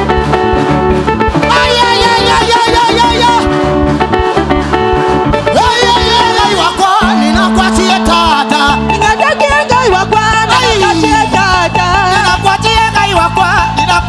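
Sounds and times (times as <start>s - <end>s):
guitar: 0.0s - 14.0s
live praise music: 0.0s - 14.0s
person singing: 1.4s - 3.7s, 5.4s - 14.0s.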